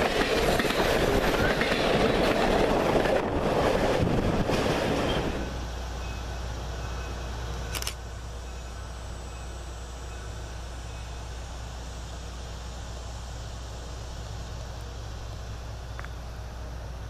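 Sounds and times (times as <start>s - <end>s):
train rumbling and rattling: 0.0s - 17.0s.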